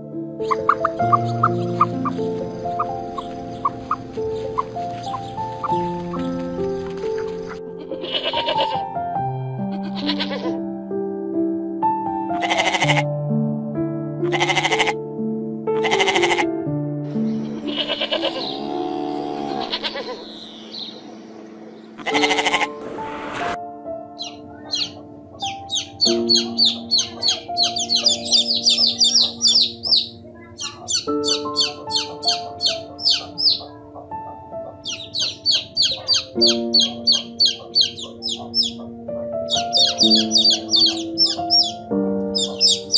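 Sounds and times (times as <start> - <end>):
gentle background music: 0.0 - 42.9
bird chirping rapidly: 0.4 - 7.6, 24.2 - 33.8, 34.6 - 38.9, 39.5 - 42.9
quavering bleats: 7.5 - 9.0, 9.6 - 10.6, 12.3 - 13.1, 14.2 - 15.0, 15.8 - 16.6, 17.3 - 20.9, 22.0 - 22.8, 24.8 - 33.8, 34.8 - 38.9, 39.5 - 41.7.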